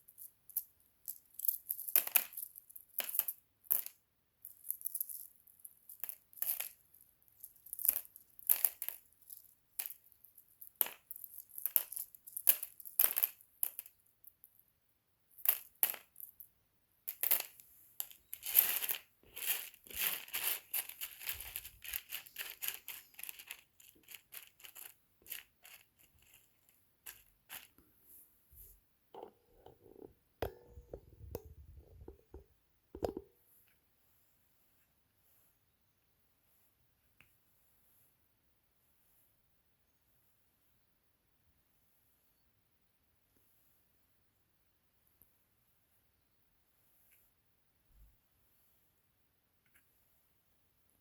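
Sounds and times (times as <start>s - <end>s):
stones clinking together: 0.0s - 14.5s, 15.4s - 16.5s, 17.1s - 27.8s.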